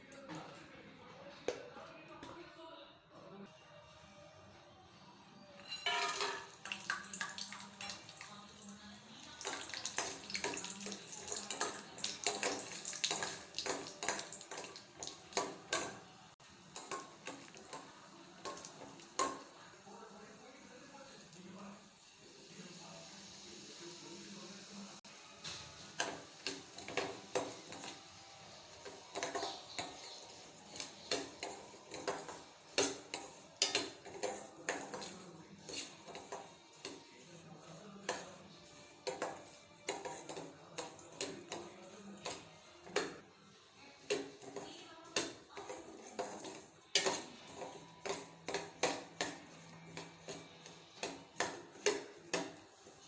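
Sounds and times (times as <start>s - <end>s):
metal spoon scraping a pan: 5.6s - 8.2s, 28.8s - 43.2s, 44.0s - 53.0s.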